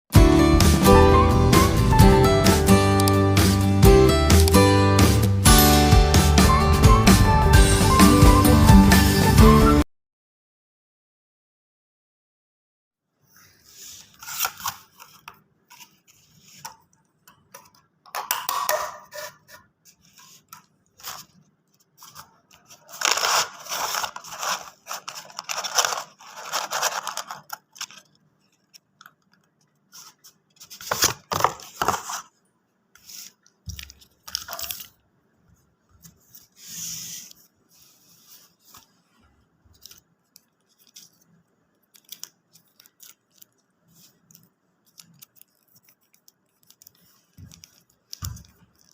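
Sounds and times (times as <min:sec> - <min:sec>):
paper packaging rustling and tearing: 0:13.8 - 0:16.7, 0:19.2 - 0:32.4, 0:33.0 - 0:35.0, 0:39.7 - 0:48.9.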